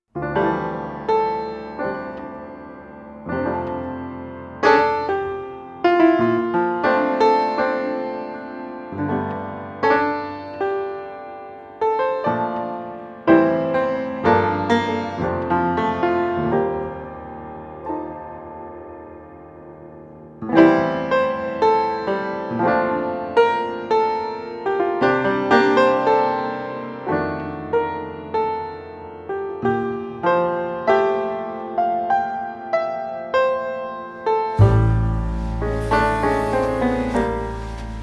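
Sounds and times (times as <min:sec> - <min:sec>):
slow solo piano melody: 0:34.6 - 0:38.0.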